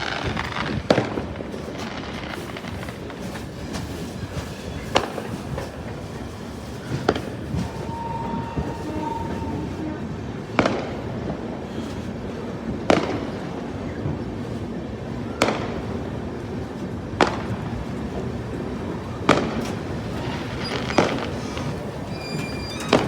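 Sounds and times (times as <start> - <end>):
rumble of train coaches: 0.0 - 23.0
train wheels clanking over rail joints: 16.8 - 23.0.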